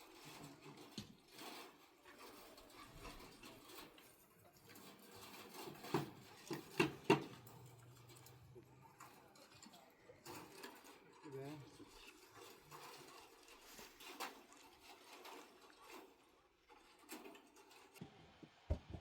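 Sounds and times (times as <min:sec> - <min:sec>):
sharp knocks: 0:18.5 - 0:19.0.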